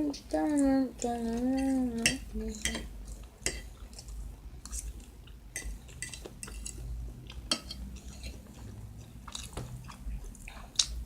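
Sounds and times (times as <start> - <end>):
person chewing: 2.6 - 11.0.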